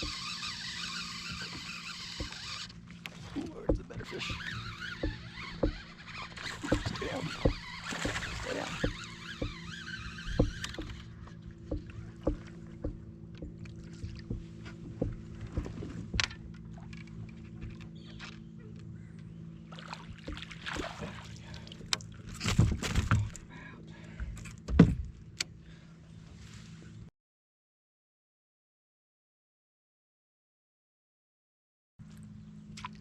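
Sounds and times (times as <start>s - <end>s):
water splashes: 0.0s - 17.0s, 19.7s - 23.4s
steady low hum: 0.0s - 27.0s
knocks: 3.4s - 16.4s.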